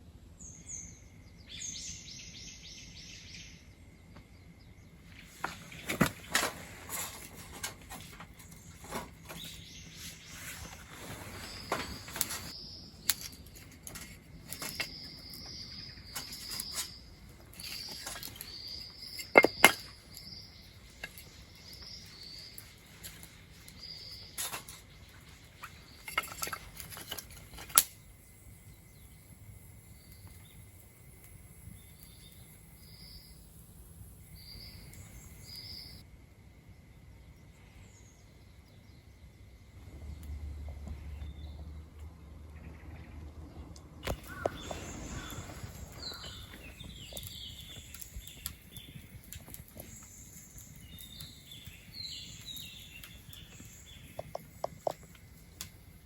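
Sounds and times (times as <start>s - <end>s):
faint insect drone: 0.2s - 41.8s
campfire crackling and popping: 5.4s - 36.0s, 43.7s - 56.0s
bird chirps: 34.2s - 36.0s, 44.1s - 55.4s.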